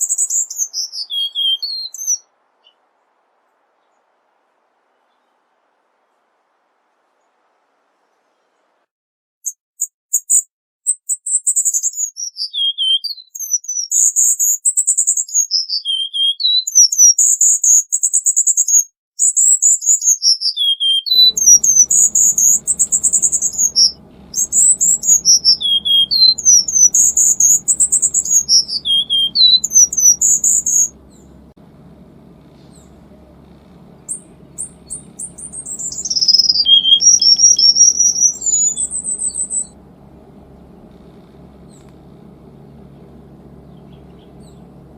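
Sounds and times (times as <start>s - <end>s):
bullfinch singing: 0.0s - 2.9s, 19.2s - 44.9s
faint low hum: 0.0s - 8.9s, 21.3s - 44.9s.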